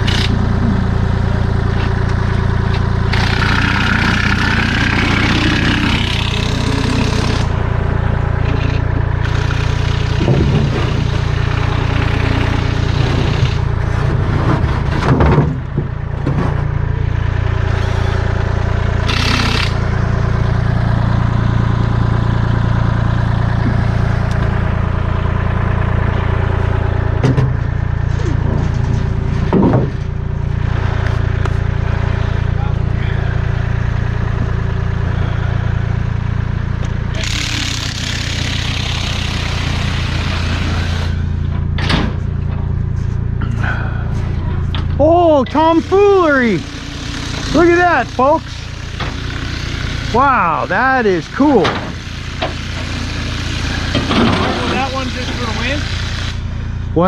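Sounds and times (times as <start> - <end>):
vehicle engine droning: 0.0 - 57.0
knocks and clunks: 10.1 - 11.2, 12.3 - 16.8, 27.2 - 30.2, 41.4 - 42.8, 51.6 - 52.6, 53.9 - 54.8.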